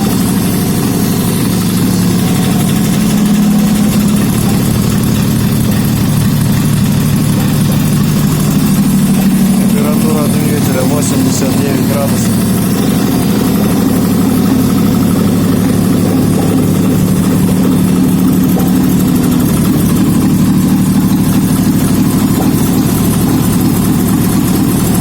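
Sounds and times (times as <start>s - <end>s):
petrol engine idling: 0.0s - 25.0s.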